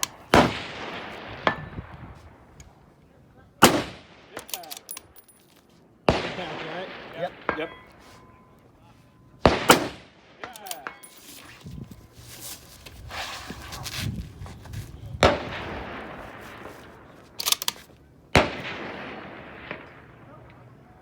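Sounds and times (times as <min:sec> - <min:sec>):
rifle shots with echo: 0:00.0 - 0:02.5, 0:03.6 - 0:05.3, 0:06.0 - 0:08.3, 0:09.4 - 0:11.1, 0:15.2 - 0:20.8.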